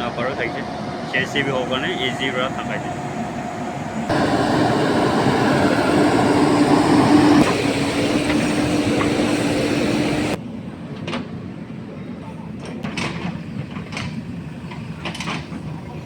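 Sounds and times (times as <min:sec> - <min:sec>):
diesel engine running: 0:00.0 - 0:10.4.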